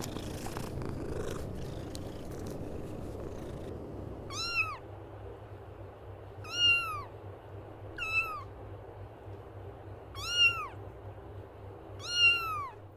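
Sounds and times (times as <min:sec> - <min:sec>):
kitten meowing: 0:04.3 - 0:04.8, 0:06.4 - 0:07.1, 0:08.0 - 0:08.5, 0:10.2 - 0:10.8, 0:12.0 - 0:12.8.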